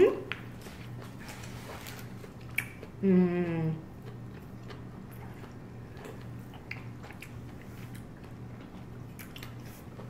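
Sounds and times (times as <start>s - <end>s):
low steady hum: 0.0s - 10.0s
wet chewing mouth sounds: 0.3s - 10.0s
mouth smacks and clicks: 2.4s - 2.9s.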